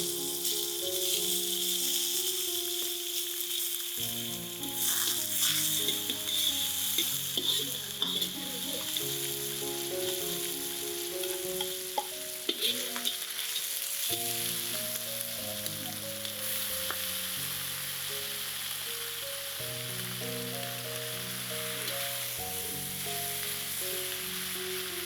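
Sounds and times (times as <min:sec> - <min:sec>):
food sizzling in oil: 0:00.0 - 0:25.0
soft instrumental music: 0:00.0 - 0:25.0
utensil clicking against pan: 0:05.9 - 0:08.4, 0:11.2 - 0:13.7.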